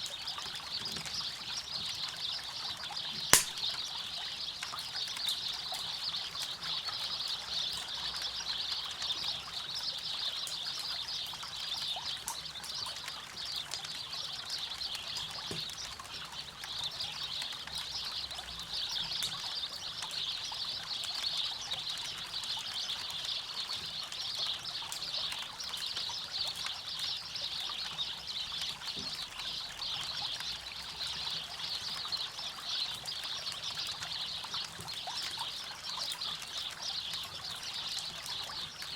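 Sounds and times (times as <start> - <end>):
campfire crackling: 3.4 - 3.7.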